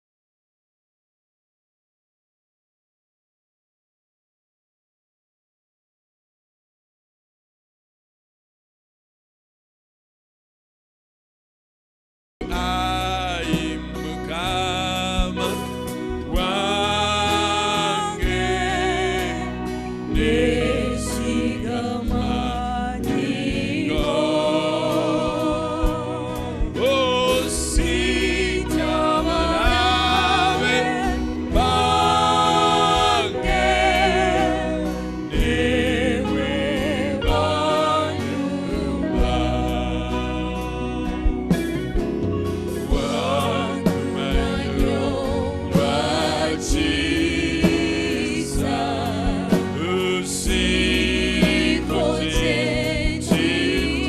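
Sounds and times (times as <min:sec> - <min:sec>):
band with bass and beat: 0:12.4 - 0:54.0
voices singing together: 0:12.5 - 0:54.0.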